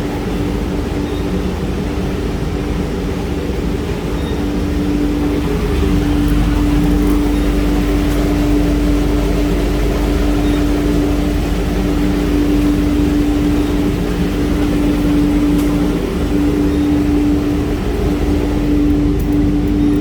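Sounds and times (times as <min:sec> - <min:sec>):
washing machine humming: 0:00.0 - 0:20.0.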